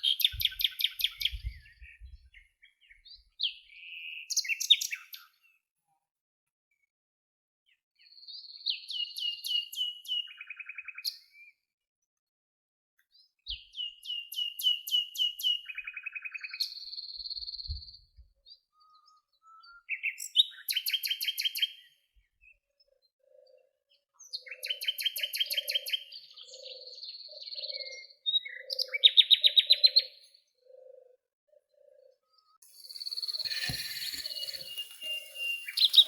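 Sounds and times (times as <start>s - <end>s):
songbirds singing trills: 0.0s - 5.6s, 13.1s - 36.0s.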